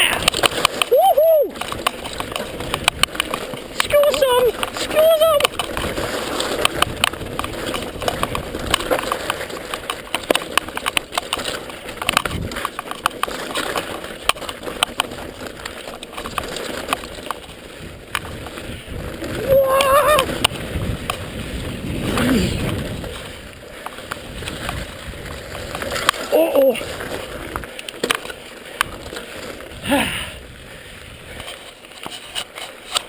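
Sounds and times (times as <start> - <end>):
bike rattling over bumps: 0.0 - 33.0
bike tyre and wind noise: 0.0 - 33.0
wavering shout-like sound: 19.4 - 20.2.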